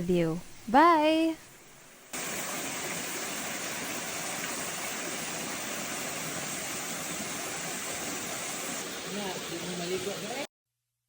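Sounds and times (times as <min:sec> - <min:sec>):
waterfall rushing: 0:02.1 - 0:10.5.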